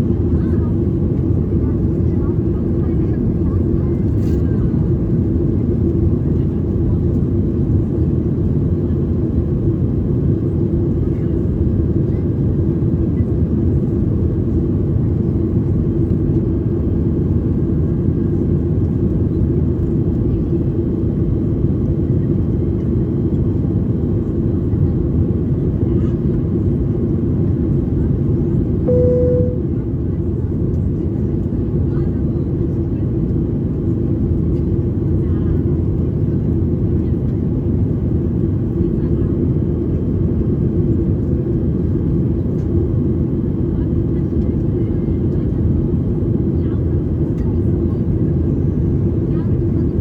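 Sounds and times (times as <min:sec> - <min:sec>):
jet airliner cabin drone: 0:00.0 - 0:30.1, 0:36.8 - 0:50.0
short chime: 0:28.9 - 0:29.6.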